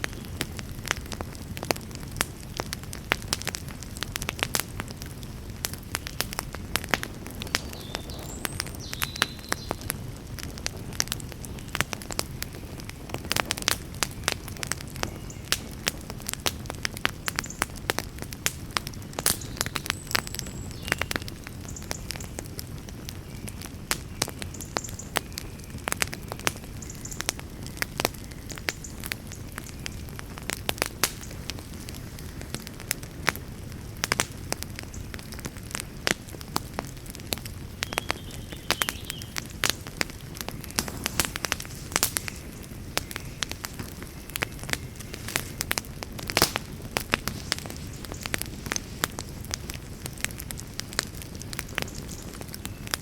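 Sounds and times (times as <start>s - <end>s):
campfire crackling and popping: 0.0s - 53.0s
low rush of flames: 0.0s - 53.0s.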